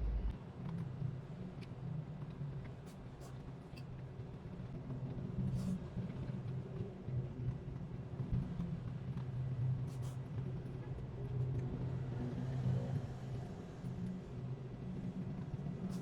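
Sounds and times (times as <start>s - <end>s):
steady low hum: 0.0s - 0.3s.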